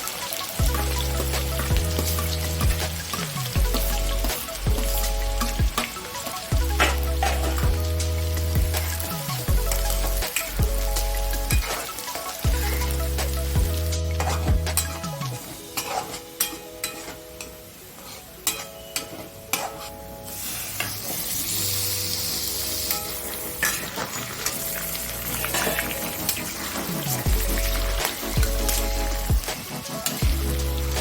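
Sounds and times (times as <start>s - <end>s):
food sizzling in a pan: 0.0s - 31.0s
spoon scraping and knocking pan: 6.7s - 7.8s, 13.6s - 21.6s, 22.9s - 26.4s.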